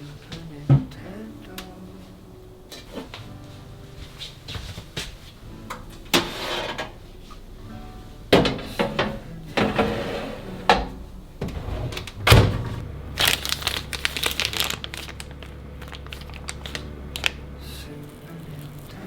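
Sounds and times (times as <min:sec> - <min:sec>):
items being set down: 0:00.0 - 0:02.1, 0:02.7 - 0:17.6
steady low hum: 0:00.0 - 0:19.0
heavy thump: 0:02.7 - 0:13.2
plastic packaging crinkling: 0:12.8 - 0:19.0.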